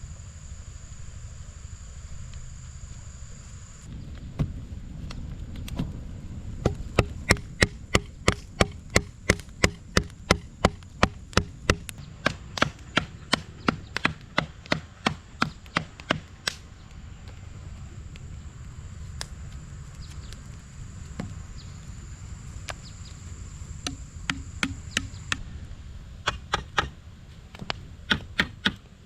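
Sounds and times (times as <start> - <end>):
tool striking wood: 6.6 - 16.6, 23.9 - 25.4.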